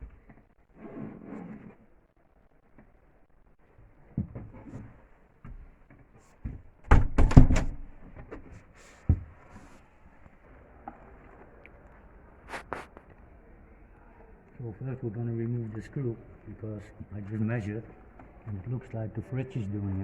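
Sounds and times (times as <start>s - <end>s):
thump: 6.9s - 7.8s.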